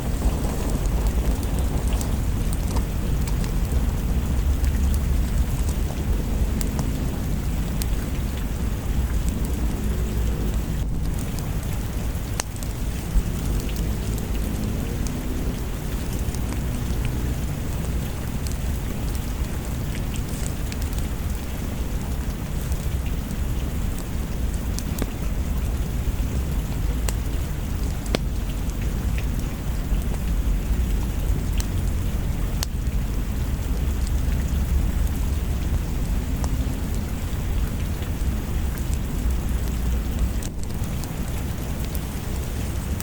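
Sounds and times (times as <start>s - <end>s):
low rumble of thunder: 0.0s - 22.6s
steady rain: 0.0s - 43.0s.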